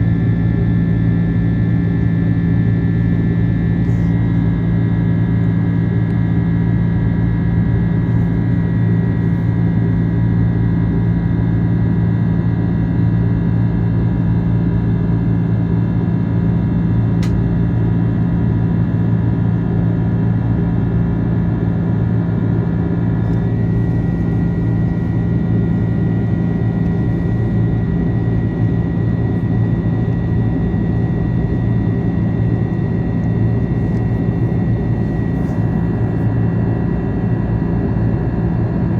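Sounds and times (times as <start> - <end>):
airliner cabin engine drone: 0.0 - 38.9
steady cabin hums: 15.9 - 36.6.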